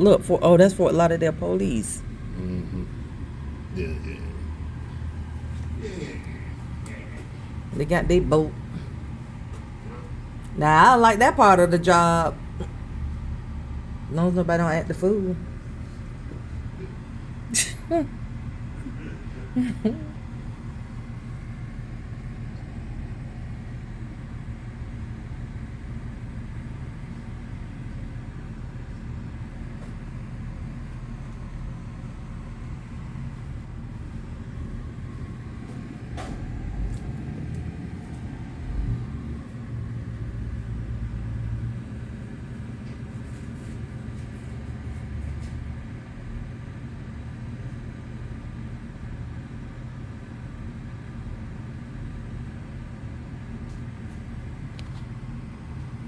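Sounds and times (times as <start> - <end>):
steady low rumble: 0.0 - 42.7.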